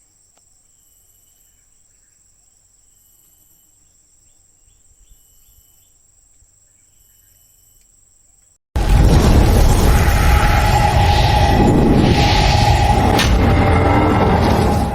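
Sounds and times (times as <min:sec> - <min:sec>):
insects trilling: 0:00.0 - 0:08.6.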